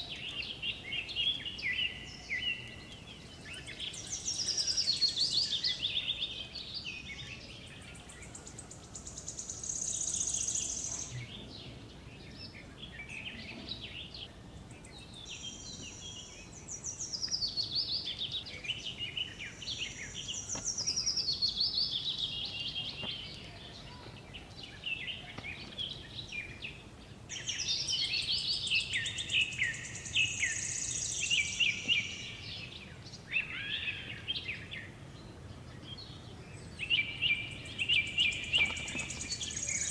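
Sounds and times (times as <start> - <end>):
wild birds chirping and trilling: 0.0 - 39.9.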